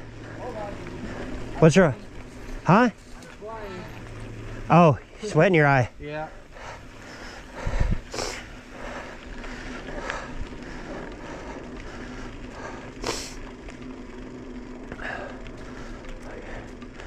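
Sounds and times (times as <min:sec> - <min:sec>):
bicycle rolling on dirt trail: 0:00.0 - 0:17.0.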